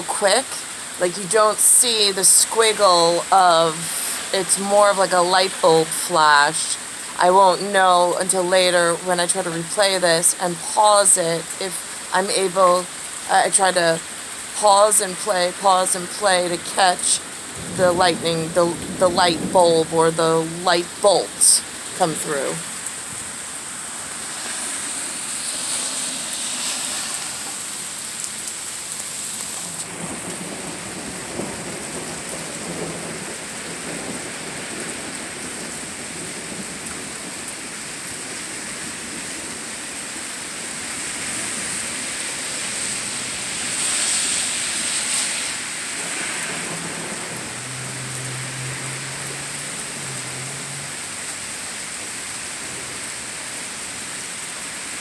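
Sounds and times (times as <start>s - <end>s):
steady rain falling: 0.0s - 55.0s
low thunder rumbling: 16.5s - 22.8s, 29.9s - 37.8s.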